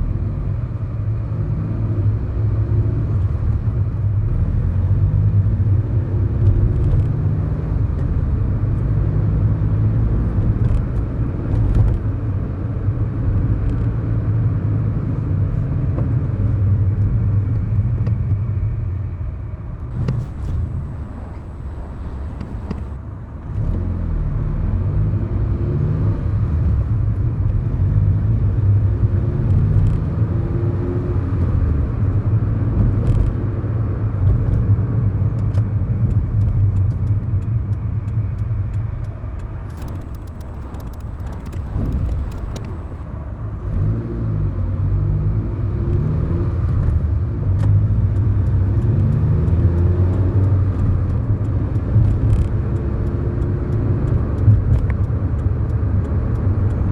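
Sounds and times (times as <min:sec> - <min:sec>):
car engine accelerating: 0:19.9 - 0:23.0, 0:39.6 - 0:45.0.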